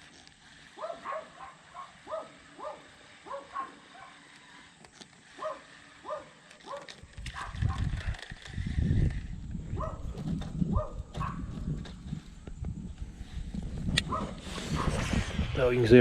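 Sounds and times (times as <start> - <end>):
low rumbling noise: 12.2 - 16.0.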